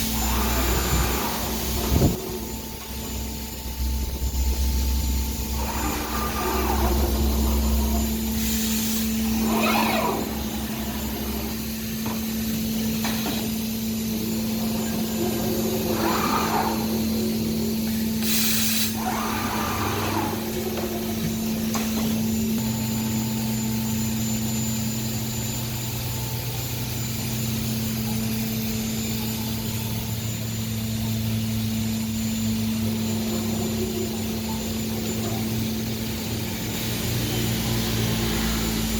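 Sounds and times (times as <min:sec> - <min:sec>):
cnc router cutting wood: 0:00.0 - 0:18.2, 0:18.9 - 0:38.9
compressed air hiss: 0:08.3 - 0:09.9, 0:17.9 - 0:19.3.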